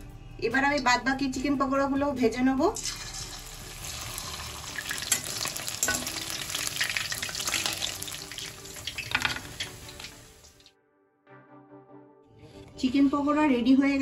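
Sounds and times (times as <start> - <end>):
food deep-frying in oil: 2.8 - 10.7.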